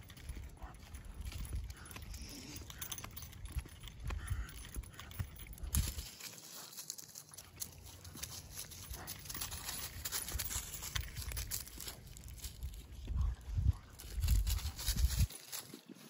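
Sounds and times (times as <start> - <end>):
footsteps crunching dry leaves: 3.5 - 16.0.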